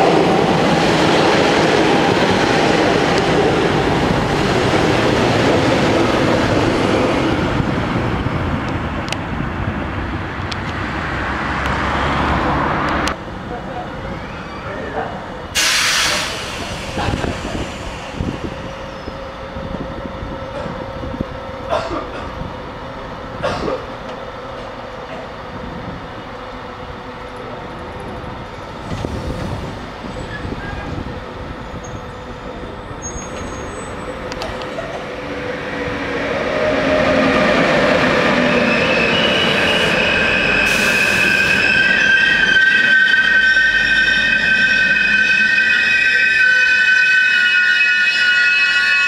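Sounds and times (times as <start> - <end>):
train rolling rumble: 0.0 - 46.6
train brakes squealing: 15.6 - 19.2, 31.6 - 34.2, 38.0 - 49.0.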